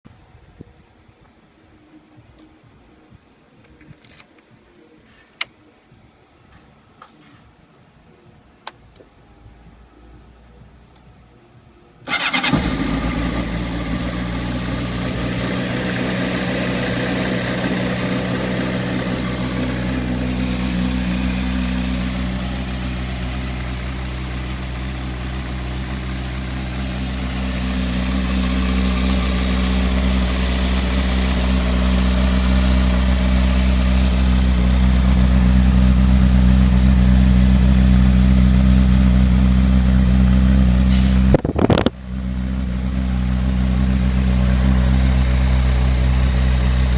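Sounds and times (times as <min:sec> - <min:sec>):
motorcycle engine idling: 0:12.1 - 0:46.9.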